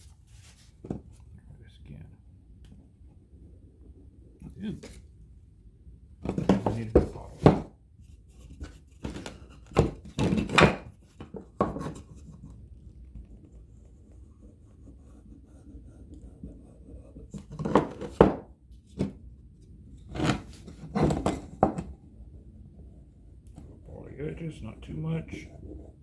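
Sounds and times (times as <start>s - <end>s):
faint low hum: 0.0s - 26.0s
wooden boards knocking and scraping: 6.2s - 7.7s, 8.6s - 12.1s, 17.4s - 19.2s, 20.1s - 21.9s.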